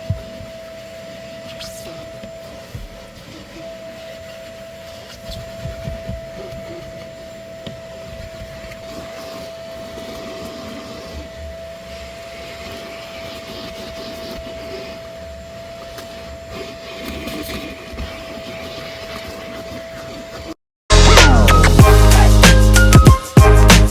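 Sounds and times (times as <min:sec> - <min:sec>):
nozzle rubbing and knocking: 0:00.0 - 0:09.4
vacuum motor whining: 0:00.0 - 0:20.6.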